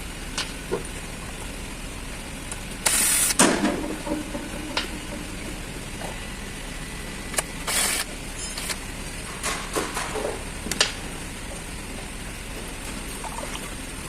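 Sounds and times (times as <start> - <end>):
short hissing bursts: 2.8 - 3.4.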